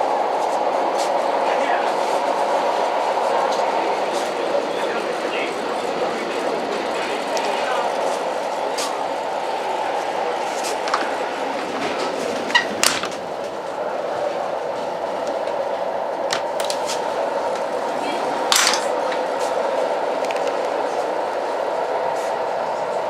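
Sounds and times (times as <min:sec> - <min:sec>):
train wheels rumbling on track: 0:00.0 - 0:23.0
carriage clicks and rattles: 0:18.5 - 0:18.9.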